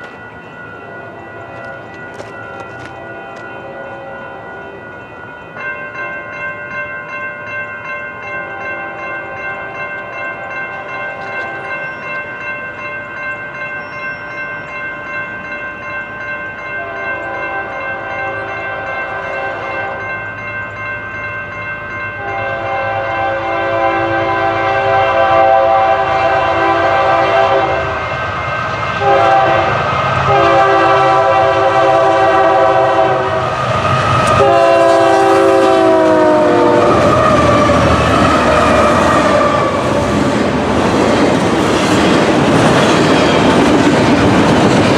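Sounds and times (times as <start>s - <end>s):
train engine and wheels rumbling: 0.0s - 44.9s
locomotive air horn blasts: 22.2s - 28.1s, 29.0s - 33.5s, 34.3s - 37.7s.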